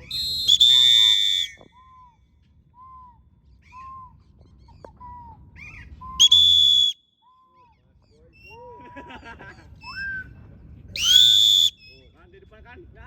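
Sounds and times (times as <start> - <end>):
high-pitched whistle blast: 0.0 - 2.1, 6.2 - 7.4
faint rising and falling whistles: 0.0 - 8.6, 9.8 - 12.2.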